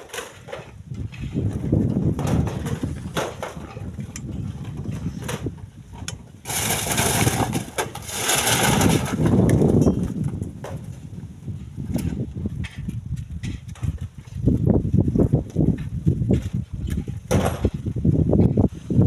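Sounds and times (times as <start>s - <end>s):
rocks knocking on rock and metal: 0.0s - 6.1s.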